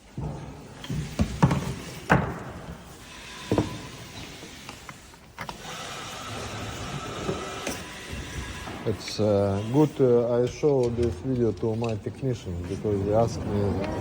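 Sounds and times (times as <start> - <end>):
hard parts knocking and clunking: 0.0 - 9.6.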